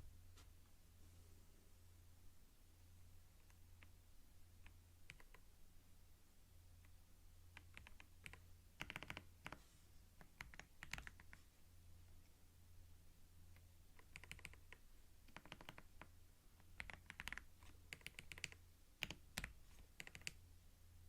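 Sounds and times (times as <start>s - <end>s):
faint low hum: 0.0s - 21.0s
computer keyboard typing: 4.6s - 5.4s, 7.5s - 9.6s, 10.2s - 11.4s, 13.9s - 20.4s.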